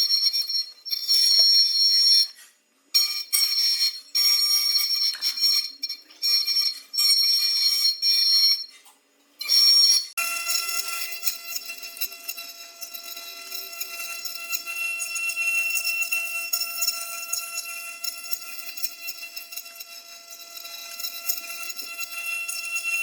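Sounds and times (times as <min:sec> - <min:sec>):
milling spindle cutting wood: 0:09.5 - 0:23.0.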